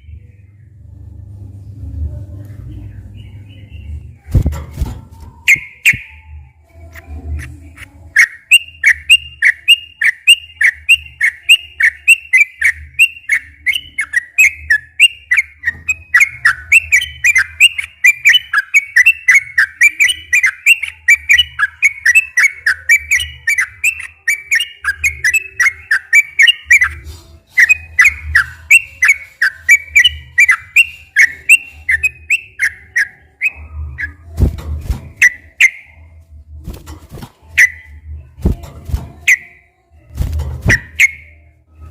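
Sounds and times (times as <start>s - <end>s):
bird singing bubbly whistled notes: 5.4s - 6.3s, 8.2s - 27.0s, 27.6s - 34.3s, 35.2s - 36.1s, 37.6s - 38.1s, 39.2s - 39.6s, 40.7s - 41.5s.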